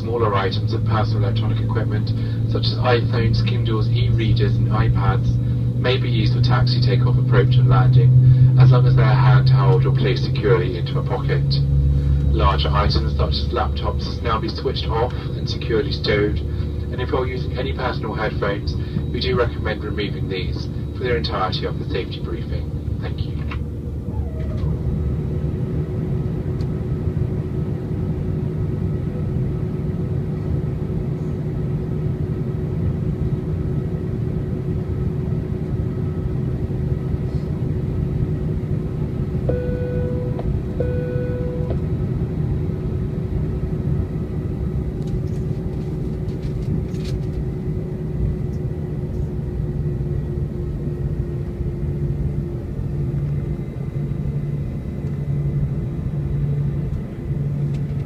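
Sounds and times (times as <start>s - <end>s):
airplane cabin rumble and hum: 0.0s - 58.0s
short identical tones: 24.1s - 25.0s, 39.5s - 41.8s.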